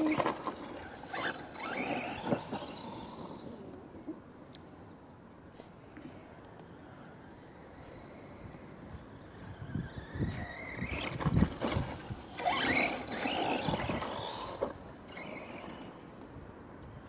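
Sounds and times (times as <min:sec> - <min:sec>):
electric motor whining: 0:09.4 - 0:15.9.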